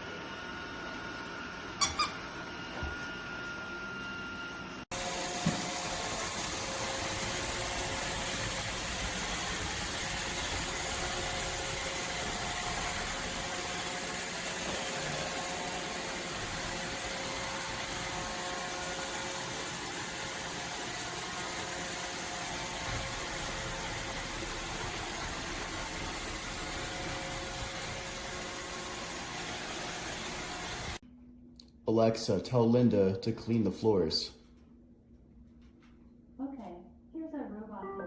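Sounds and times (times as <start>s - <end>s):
robot vacuum whirring: 4.9s - 31.0s.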